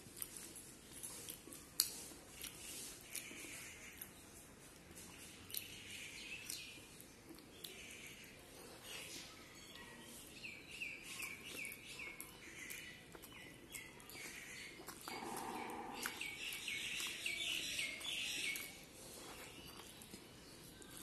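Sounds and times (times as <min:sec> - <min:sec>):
wet chewing and smacking: 0:00.0 - 0:21.0
bird chirping: 0:07.6 - 0:21.0.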